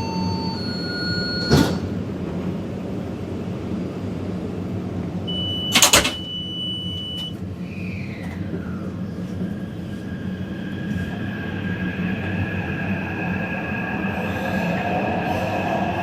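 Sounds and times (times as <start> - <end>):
train car rumble: 0.8 - 16.0
sliding doors shutting: 5.6 - 6.3.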